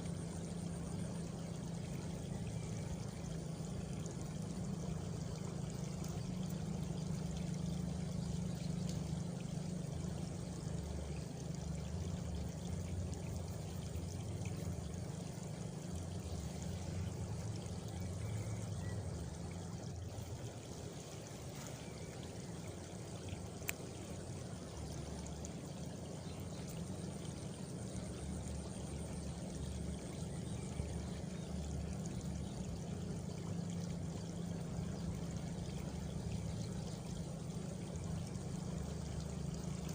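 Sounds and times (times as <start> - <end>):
faint cricket trill: 0.0 - 39.9
running water rushing: 0.0 - 39.9
sharp tick: 23.6 - 24.0.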